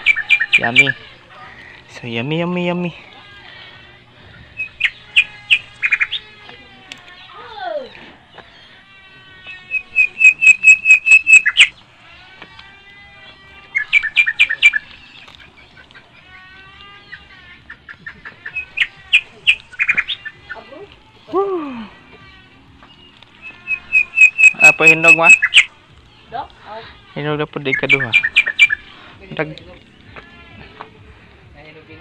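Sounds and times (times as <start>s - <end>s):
low falling bird call: 0.0s - 2.0s, 2.8s - 20.7s, 22.2s - 26.3s, 27.6s - 29.2s
birds chirping: 0.0s - 32.0s.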